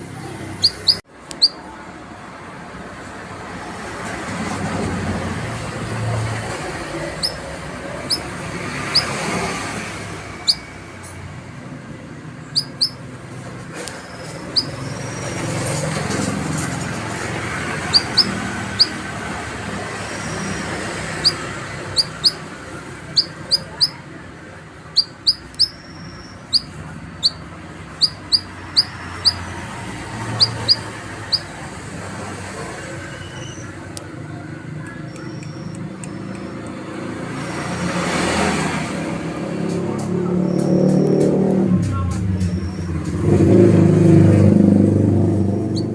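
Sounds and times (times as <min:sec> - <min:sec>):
low traffic rumble: 0:00.0 - 0:45.9
vehicle passing: 0:00.0 - 0:45.9
canary chirping: 0:00.2 - 0:01.7, 0:07.0 - 0:11.1, 0:12.4 - 0:24.2, 0:24.8 - 0:31.8, 0:33.0 - 0:33.8, 0:35.0 - 0:36.7, 0:45.6 - 0:45.9.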